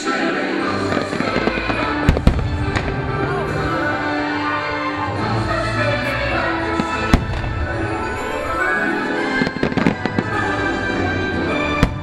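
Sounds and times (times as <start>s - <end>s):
music: 0.0s - 12.0s
fireworks bangs and cracks: 0.8s - 4.2s, 6.6s - 12.0s.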